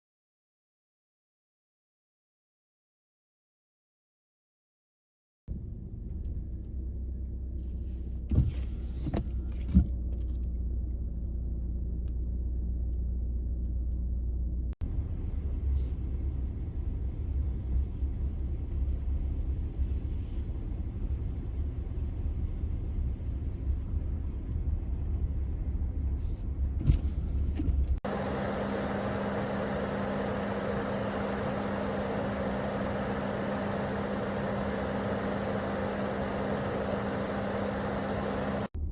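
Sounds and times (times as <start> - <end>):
car engine and road noise: 5.5 - 38.9
steady hum: 28.0 - 38.8.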